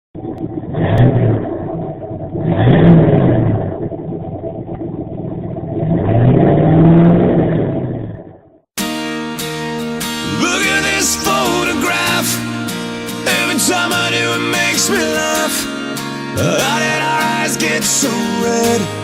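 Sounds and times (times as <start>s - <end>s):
truck engine revving: 10.0s - 19.0s.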